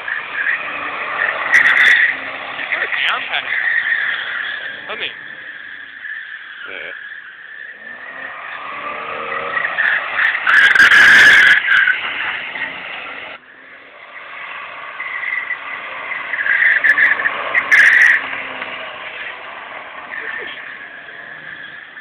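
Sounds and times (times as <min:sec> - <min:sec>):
car engine revving: 0:00.0 - 0:22.0
tyres squealing: 0:00.0 - 0:22.0.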